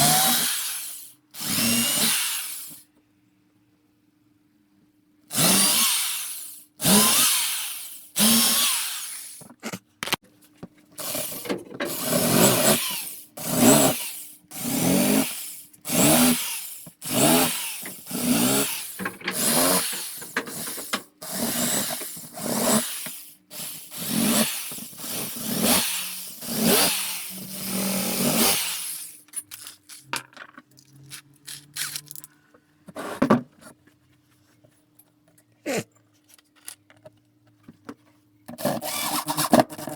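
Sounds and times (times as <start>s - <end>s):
power drill bursts: 0.0s - 2.8s, 5.3s - 9.4s, 11.0s - 29.1s, 38.8s - 39.4s.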